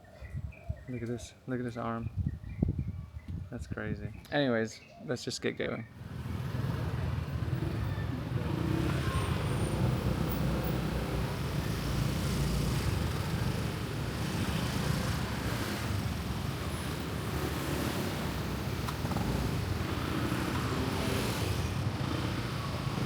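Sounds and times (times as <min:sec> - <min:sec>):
road vehicle rumbling: 0:05.8 - 0:23.0.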